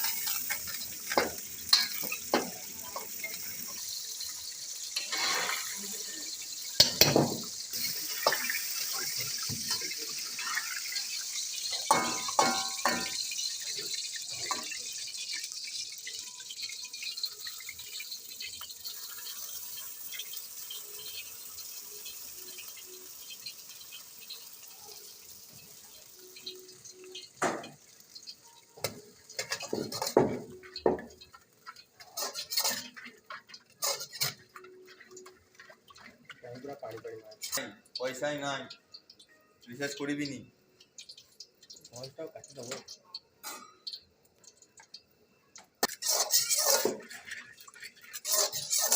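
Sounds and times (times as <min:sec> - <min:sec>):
dishes clinking and knocking: 0:06.8 - 0:08.6, 0:11.7 - 0:13.3, 0:27.4 - 0:27.8, 0:28.7 - 0:36.4, 0:45.8 - 0:48.9
tap water running into sink: 0:06.8 - 0:20.3.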